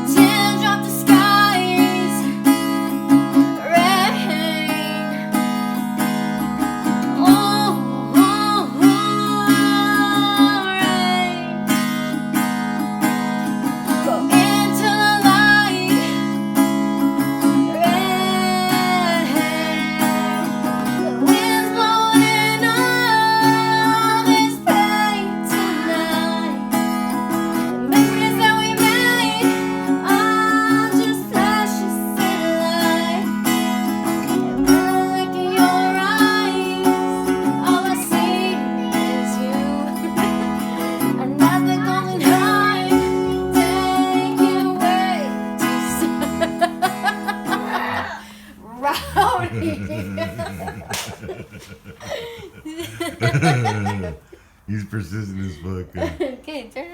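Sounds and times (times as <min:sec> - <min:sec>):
person singing: 0:00.0 - 0:05.4, 0:17.5 - 0:26.7, 0:34.2 - 0:48.3, 0:49.0 - 0:56.2
acoustic guitar strumming: 0:00.0 - 0:51.7.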